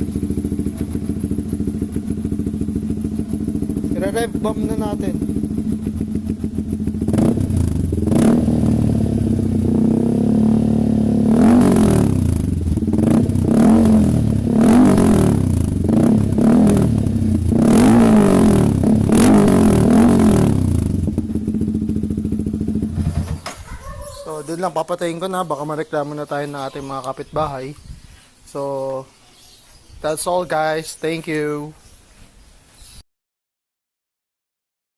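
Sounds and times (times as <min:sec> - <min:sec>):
motorcycle engine revving: 0:00.0 - 0:24.3.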